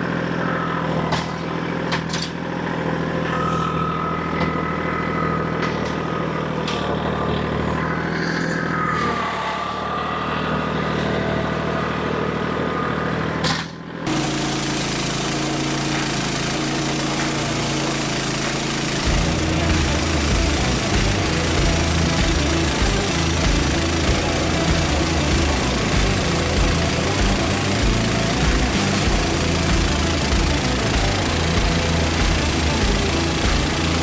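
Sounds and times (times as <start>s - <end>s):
petrol engine running: 14.1s - 34.0s.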